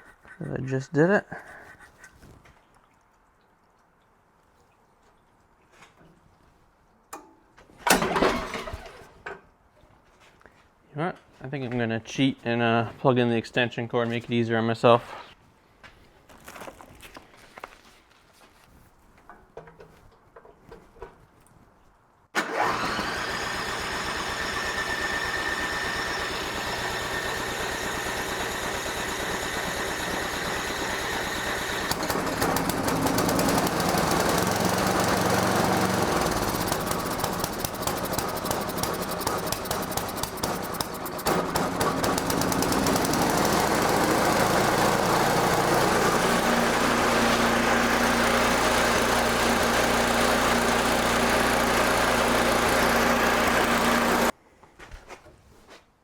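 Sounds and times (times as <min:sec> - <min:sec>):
electric starter cranking: 0:07.8 - 0:09.2, 0:22.4 - 0:54.3
small engine running: 0:07.9 - 0:09.1, 0:22.4 - 0:54.3.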